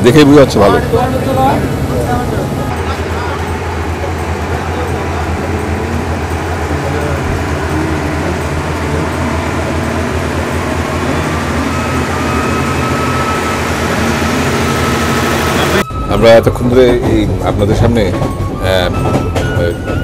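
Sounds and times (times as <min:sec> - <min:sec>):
passenger train rumbling: 0:00.0 - 0:20.0
faint high squeal: 0:10.9 - 0:16.4.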